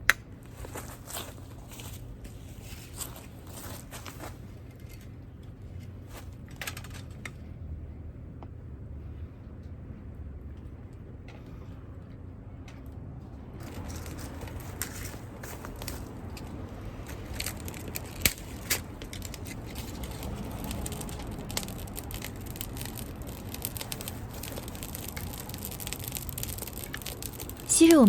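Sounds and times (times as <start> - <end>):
food frying with sharp pops: 15.7 - 28.0
loud cracks: 15.8 - 28.0.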